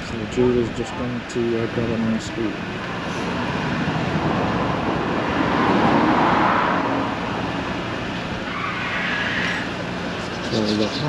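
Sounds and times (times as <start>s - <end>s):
road vehicle passing: 2.4s - 11.0s.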